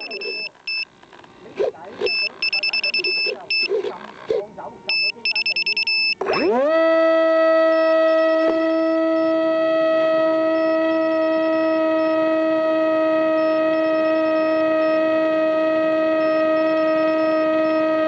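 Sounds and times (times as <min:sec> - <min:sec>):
faint high-pitched beeping: 0:00.0 - 0:01.0, 0:02.0 - 0:06.6, 0:07.6 - 0:09.4, 0:10.3 - 0:12.4, 0:13.2 - 0:15.1, 0:16.0 - 0:18.0
model aeroplane motor whine: 0:06.4 - 0:18.0.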